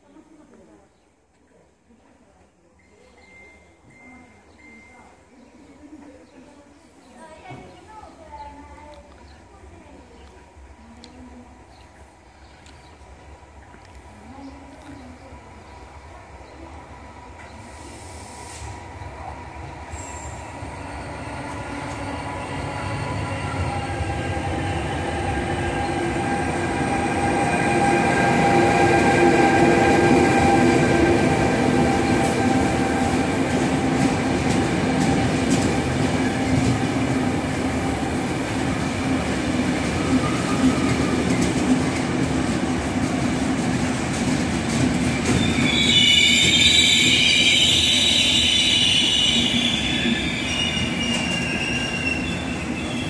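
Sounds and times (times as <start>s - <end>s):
electric train arriving: 14.3s - 53.0s
train wheels squealing: 19.9s - 33.2s, 45.1s - 53.0s.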